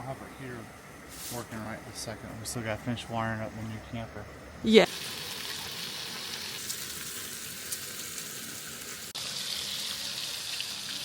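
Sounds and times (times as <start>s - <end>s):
food sizzling in a pan: 4.8s - 11.0s.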